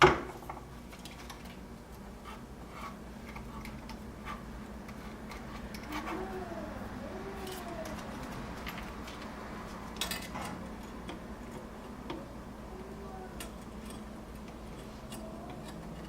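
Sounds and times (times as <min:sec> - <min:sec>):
steady low hum: 0:00.0 - 0:16.0
small tools clicking and tapping: 0:03.2 - 0:06.2, 0:13.4 - 0:16.0.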